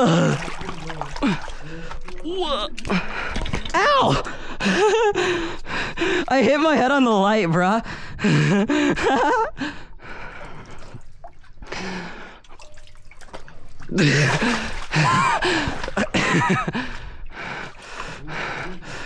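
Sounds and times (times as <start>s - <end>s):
person making wordless vocal sounds: 0.0s - 5.4s, 6.0s - 7.9s.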